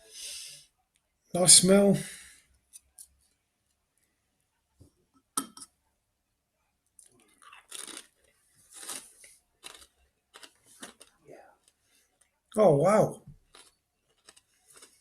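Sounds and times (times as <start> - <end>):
chewing crisp crackling: 7.0 - 12.4, 13.3 - 15.0
potato crisp crunching: 7.0 - 12.4, 13.3 - 15.0.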